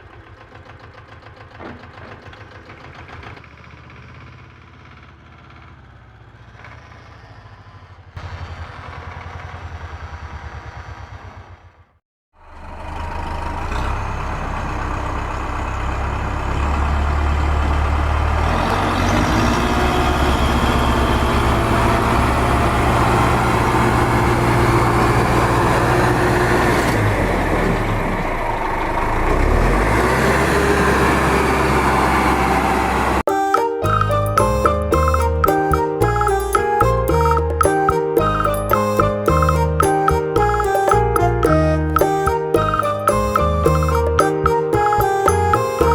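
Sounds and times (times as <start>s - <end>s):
vehicle engine running: 12.4s - 26.6s.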